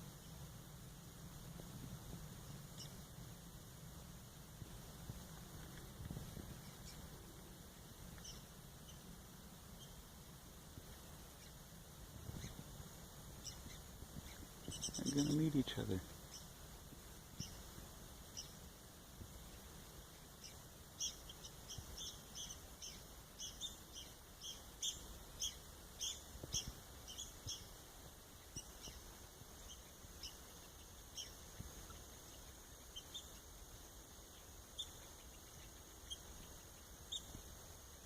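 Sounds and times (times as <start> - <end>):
woodpeckers calling: 5.5 - 10.2, 10.8 - 18.7, 19.4 - 33.5, 34.3 - 37.4.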